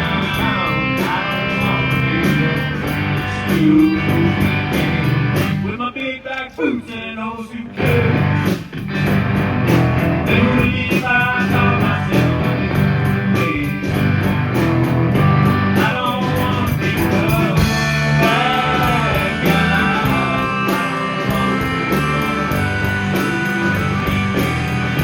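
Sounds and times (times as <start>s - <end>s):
rock band playing: 0.0s - 5.7s, 7.8s - 25.0s.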